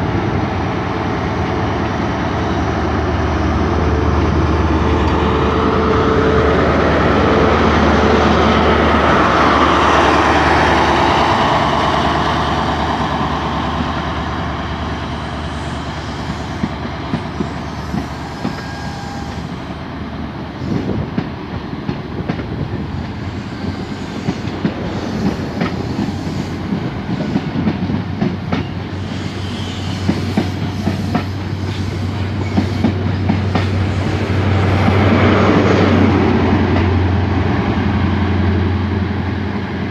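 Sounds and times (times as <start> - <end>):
train running along track: 0.0 - 39.9.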